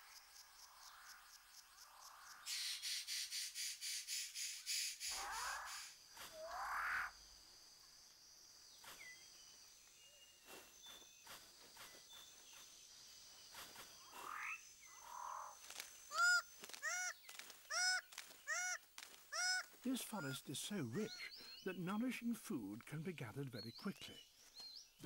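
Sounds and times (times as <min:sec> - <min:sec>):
high insect whine: 0:00.0 - 0:21.6
birds calling: 0:08.8 - 0:25.0.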